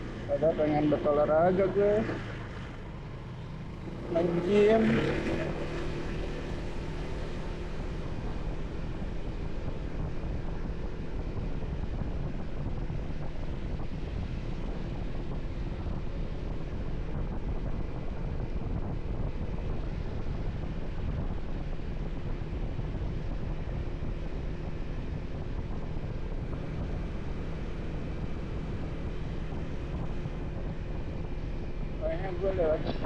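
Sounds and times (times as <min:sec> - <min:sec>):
motorcycle engine rumble: 0:00.0 - 0:33.0
wind rushing over microphone: 0:00.0 - 0:33.0.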